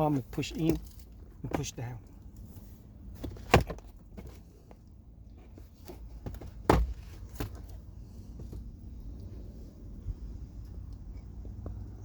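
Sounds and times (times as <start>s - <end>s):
glove box plastic knocks: 6.2s - 7.6s.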